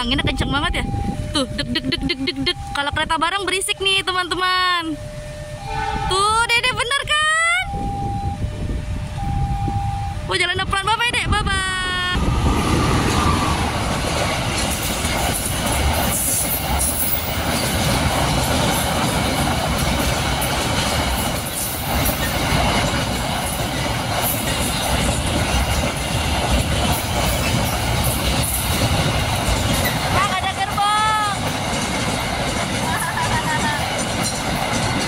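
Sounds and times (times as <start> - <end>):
diesel locomotive passing: 0.0 - 35.0
steel wheels on rails: 12.1 - 35.0.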